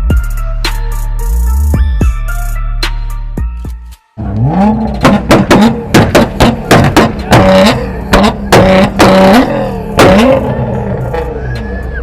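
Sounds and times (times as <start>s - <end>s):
exhaust cracks: 4.2s - 11.3s
car engine revving: 4.2s - 12.0s.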